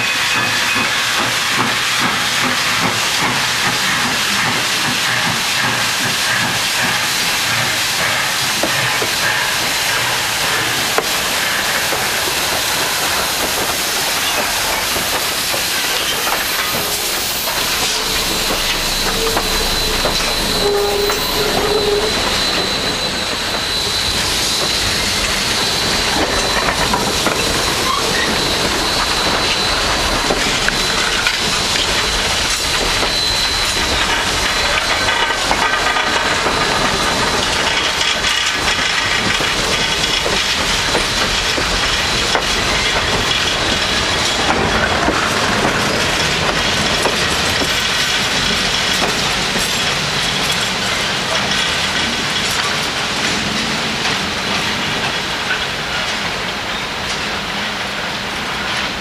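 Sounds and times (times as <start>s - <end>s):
clickety-clack over rail joints: 0.0s - 59.0s
train wheels rumbling on rails: 0.0s - 59.0s
thin high tone: 15.6s - 25.1s.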